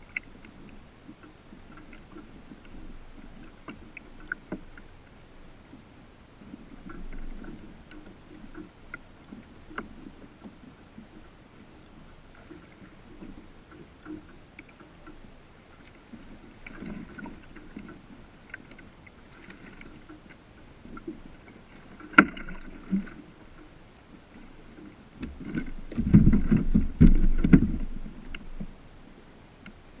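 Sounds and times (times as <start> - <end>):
knocks on kayak hull: 26.0 - 27.9.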